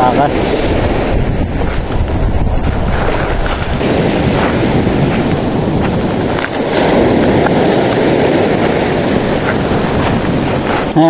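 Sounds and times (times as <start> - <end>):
sea waves surging: 0.0 - 11.0
wind buffeting microphone: 0.0 - 11.0.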